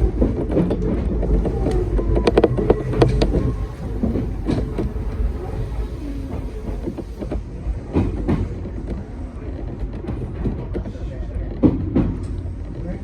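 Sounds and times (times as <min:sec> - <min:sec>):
train rumbling: 0:00.0 - 0:08.0
wheels clicking over rail joints: 0:01.2 - 0:07.3.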